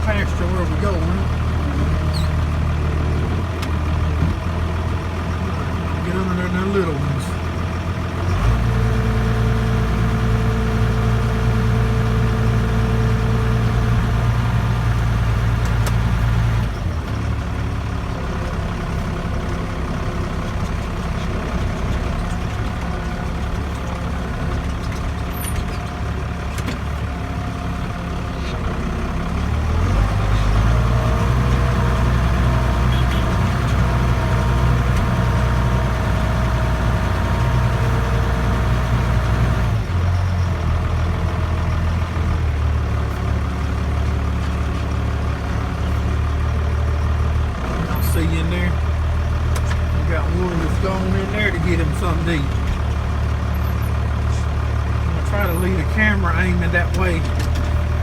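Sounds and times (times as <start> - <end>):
diesel tractor engine running: 0.0 - 58.0.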